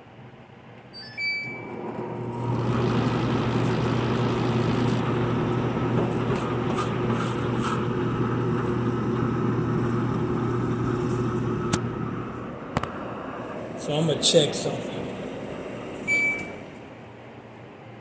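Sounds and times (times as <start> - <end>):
dryer drum turning: 1.8 - 11.9
tumble dryer motor humming: 1.8 - 17.0.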